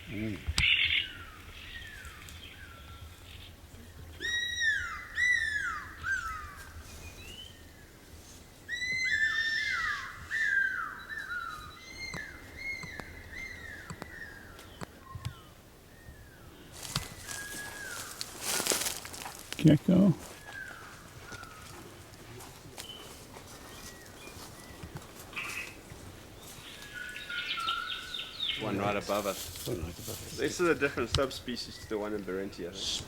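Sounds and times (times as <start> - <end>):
bird calling whistled notes: 4.2 - 7.6, 8.7 - 16.4, 17.1 - 19.2, 26.6 - 28.6.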